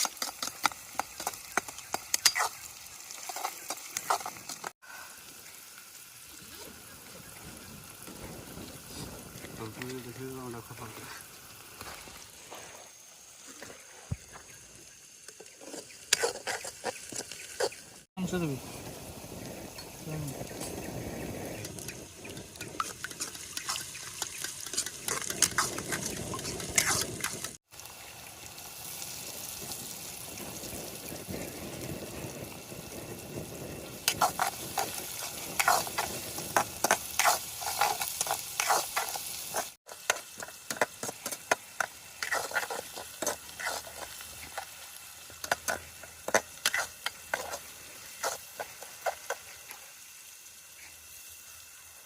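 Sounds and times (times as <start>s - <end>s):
food sizzling in a pan: 0.0s - 52.0s
spatula scraping a pan: 15.4s - 17.8s, 22.6s - 27.6s, 34.1s - 44.8s, 45.4s - 49.6s.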